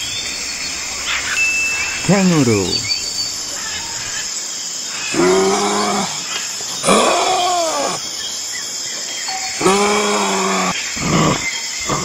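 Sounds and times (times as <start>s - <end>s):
steady background hiss: 0.0s - 9.6s
drawn-out animal calls: 0.5s - 4.2s.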